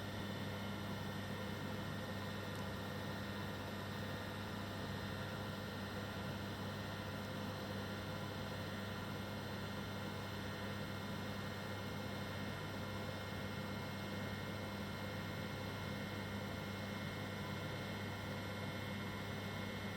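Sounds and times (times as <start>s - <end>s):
low electrical hum: 0.0s - 19.9s.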